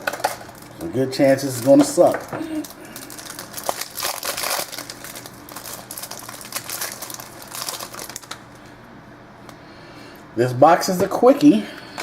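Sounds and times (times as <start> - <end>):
plastic wrapping crinkling and tearing: 0.0 - 8.6.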